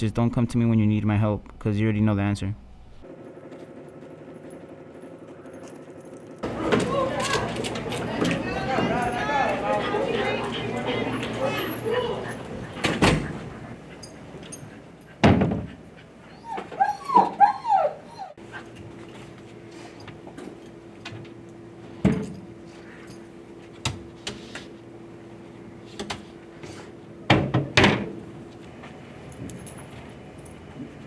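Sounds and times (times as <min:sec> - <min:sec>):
faint low hum: 0:00.0 - 0:03.0
dog whimpering and yipping: 0:16.2 - 0:18.4.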